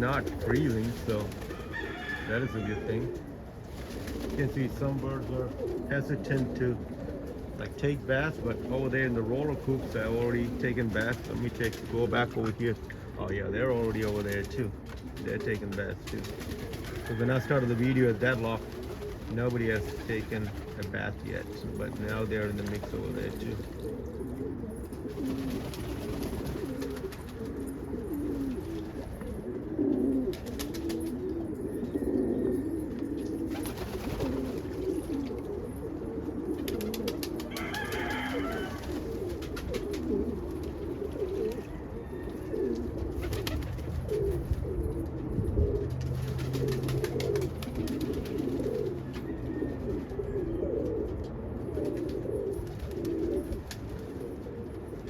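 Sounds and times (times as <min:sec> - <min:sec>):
wing flutters and clicks: 0:00.0 - 0:02.2, 0:03.1 - 0:04.6, 0:13.8 - 0:21.0, 0:25.0 - 0:29.3, 0:30.3 - 0:31.2, 0:32.9 - 0:35.6, 0:36.5 - 0:41.7, 0:42.6 - 0:45.2, 0:46.0 - 0:50.2
pigeons cooing: 0:00.0 - 0:55.0.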